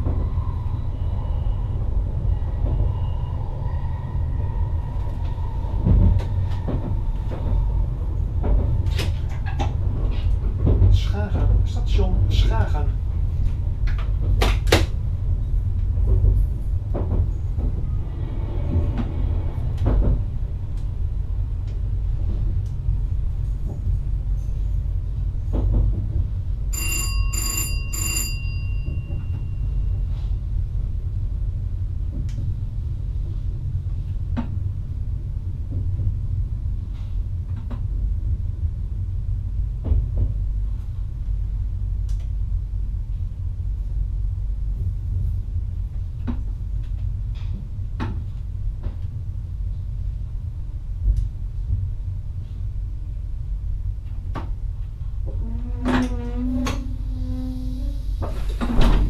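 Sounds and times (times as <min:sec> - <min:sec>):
train low rumble: 0:00.0 - 0:59.0
knocks and clicks from track: 0:16.0 - 0:17.9, 0:18.7 - 0:20.9, 0:25.5 - 0:26.9
bell ringing: 0:26.8 - 0:29.6.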